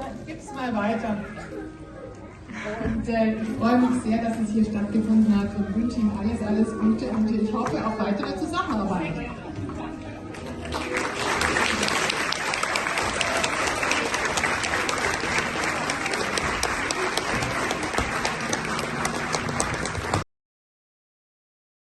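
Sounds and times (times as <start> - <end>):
audience applauding: 10.3 - 20.2.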